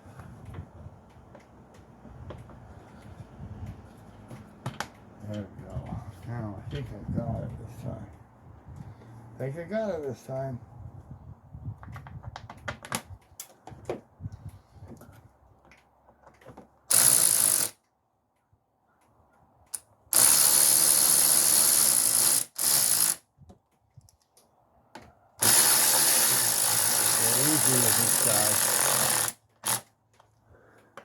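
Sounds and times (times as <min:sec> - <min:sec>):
power tool running: 0:16.9 - 0:17.8, 0:20.1 - 0:23.2, 0:25.4 - 0:29.9
ratchet wrench clicking: 0:16.9 - 0:17.8, 0:19.7 - 0:23.2, 0:25.4 - 0:29.8.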